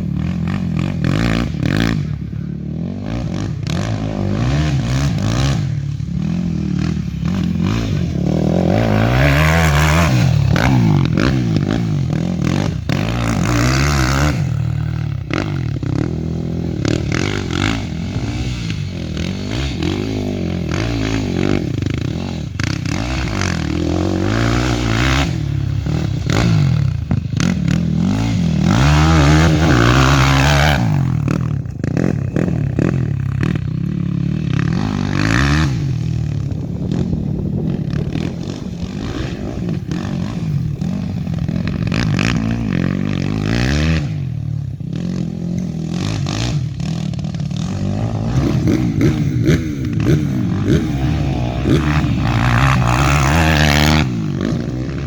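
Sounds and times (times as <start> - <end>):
quad bike engine revving: 0.0 - 55.0.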